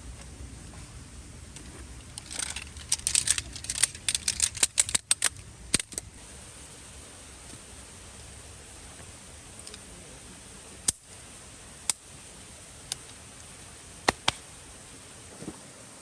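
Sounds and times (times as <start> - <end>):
small hard objects clicking: 2.1 - 6.2.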